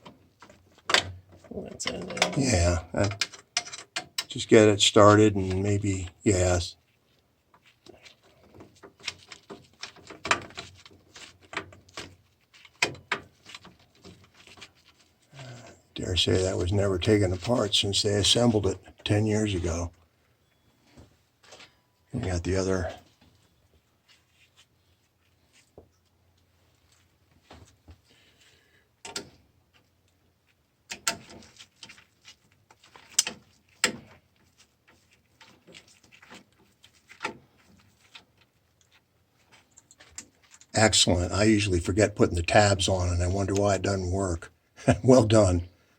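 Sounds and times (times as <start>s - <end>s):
screwdriver turning screws in metal: 3.0s - 4.3s
small metal parts clicking: 3.0s - 4.4s.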